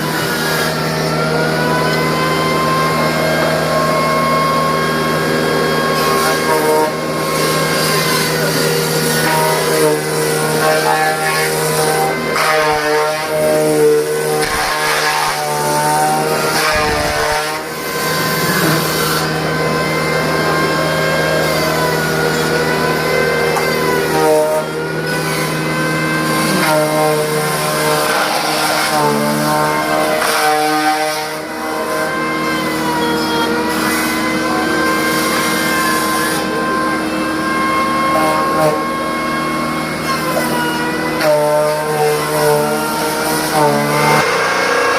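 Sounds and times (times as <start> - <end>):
wavering high whine: 0.0 - 28.6
bandsaw sawmill drone: 0.0 - 44.9.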